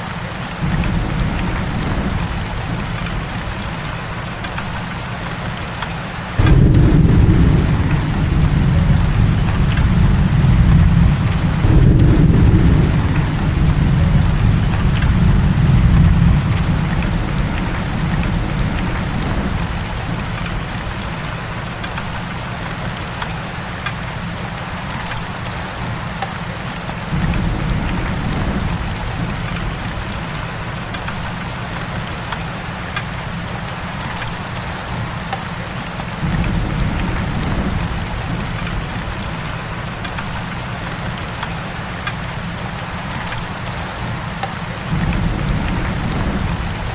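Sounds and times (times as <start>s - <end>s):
heavy rain falling: 0.0s - 46.9s
low rolling thunder: 0.6s - 5.0s, 6.4s - 22.3s, 27.1s - 31.7s, 36.2s - 41.2s, 44.9s - 46.9s.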